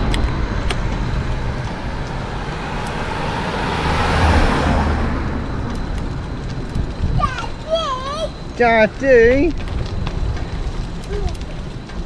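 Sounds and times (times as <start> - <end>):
vehicle passing by: 0.0 - 7.9
low rumble: 0.0 - 12.0.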